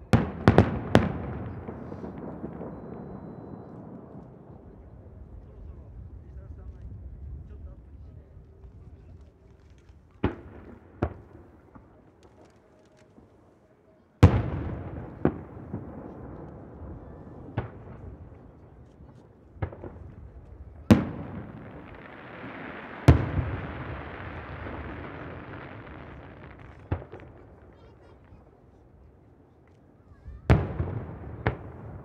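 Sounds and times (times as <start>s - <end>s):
firework shells booming with echo: 0.0s - 4.8s, 10.2s - 12.0s, 14.2s - 28.4s, 30.5s - 32.0s.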